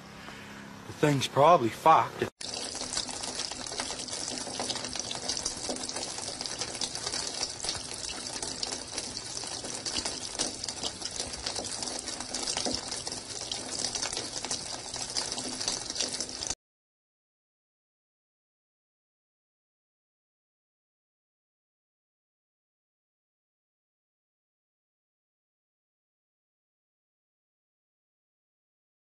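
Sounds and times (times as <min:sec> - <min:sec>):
water gushing from a pipe: 0:02.4 - 0:16.6.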